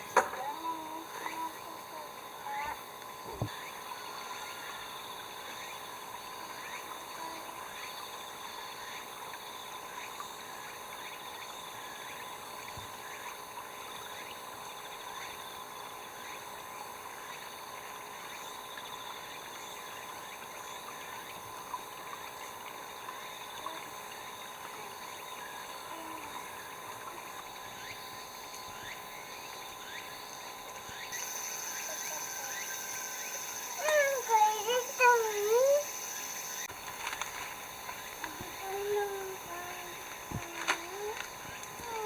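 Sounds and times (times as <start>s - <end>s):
frogs chirping: 0.0s - 42.0s
insects droning: 0.0s - 42.0s.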